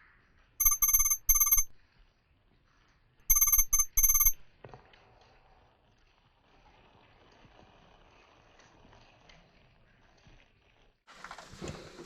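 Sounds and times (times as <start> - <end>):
electronic ringing tone: 0.6 - 1.7, 3.3 - 4.4.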